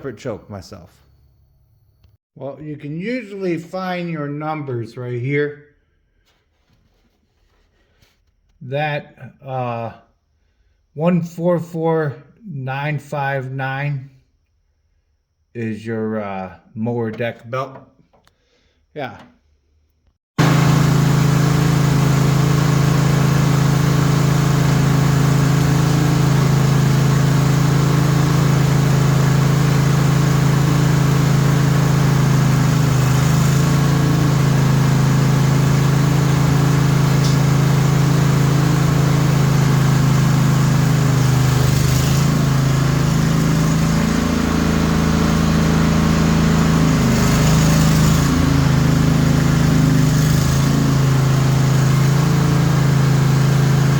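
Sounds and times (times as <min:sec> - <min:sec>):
lawn tractor engine running: 0:20.4 - 0:53.9.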